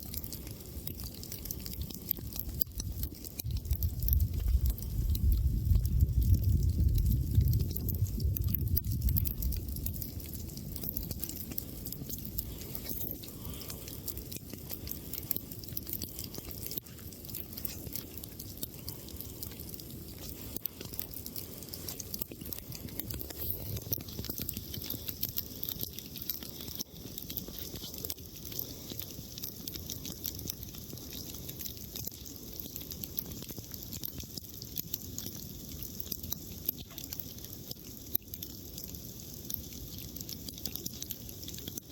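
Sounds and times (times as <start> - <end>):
campfire crackling: 0.0 - 41.9
constant hiss: 0.0 - 41.9
low rumble: 3.6 - 14.5.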